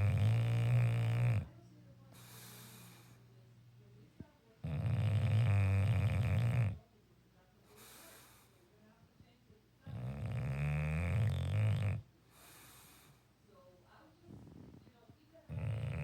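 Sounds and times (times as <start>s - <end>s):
dog snoring: 0.0s - 1.6s, 4.6s - 6.8s, 9.9s - 13.1s, 14.3s - 14.9s, 15.5s - 16.0s
faint breath: 2.1s - 3.4s, 7.6s - 8.8s, 12.2s - 13.4s.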